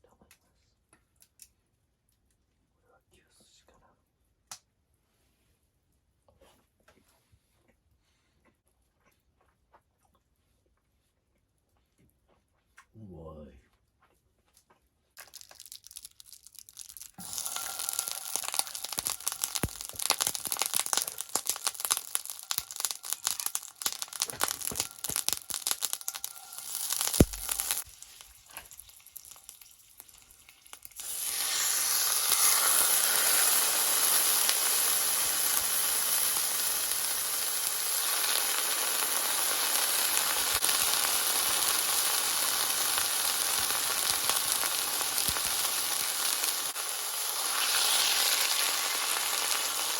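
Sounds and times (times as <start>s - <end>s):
crackling and popping: 14.0s - 49.9s
food sizzling in hot oil: 15.2s - 49.9s.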